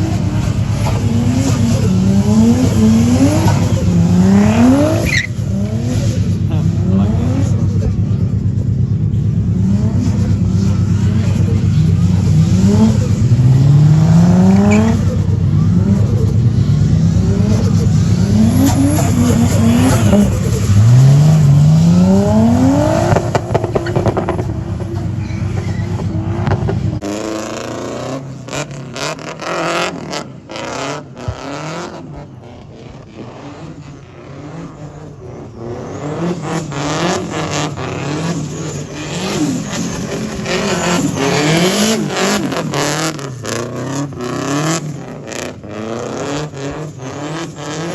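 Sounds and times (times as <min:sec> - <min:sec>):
tyre squeal: 0:00.0 - 0:06.2, 0:14.5 - 0:16.4, 0:17.5 - 0:26.7, 0:34.7 - 0:44.9
car engine revving hard: 0:00.0 - 0:47.9.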